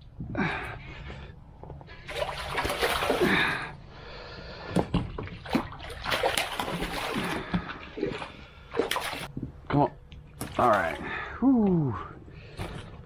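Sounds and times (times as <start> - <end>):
fish splashing in water: 2.1 - 3.4, 5.4 - 9.3.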